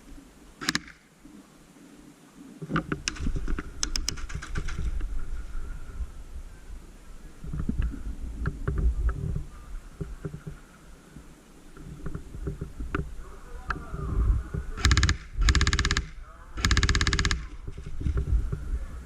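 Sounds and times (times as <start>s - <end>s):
airsoft gun bursts: 0.6s - 1.0s, 14.8s - 17.6s
knocks and clicks of movement: 2.6s - 5.1s, 7.5s - 10.6s, 11.7s - 13.1s, 14.5s - 18.7s.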